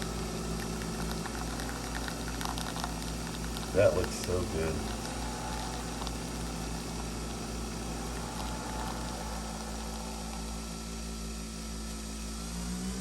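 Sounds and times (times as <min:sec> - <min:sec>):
coffee machine humming: 0:00.0 - 0:13.0.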